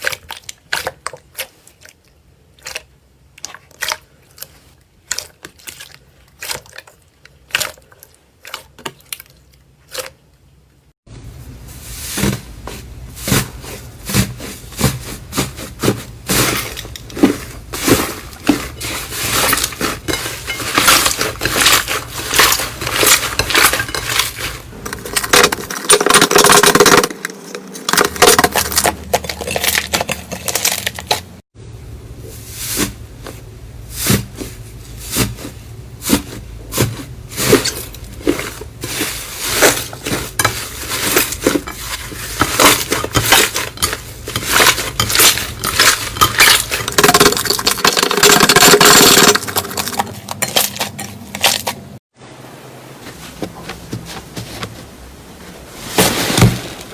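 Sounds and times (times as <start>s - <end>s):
slime crackling and squelching: 12.1s - 25.5s.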